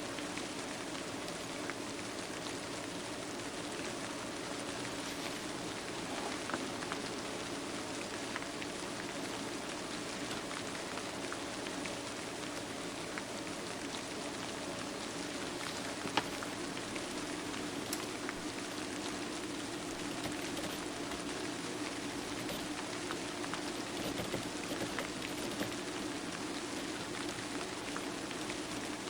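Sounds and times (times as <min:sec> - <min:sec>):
small ticks: 0:17.2 - 0:18.7, 0:20.0 - 0:21.3, 0:22.2 - 0:22.9, 0:23.5 - 0:29.0.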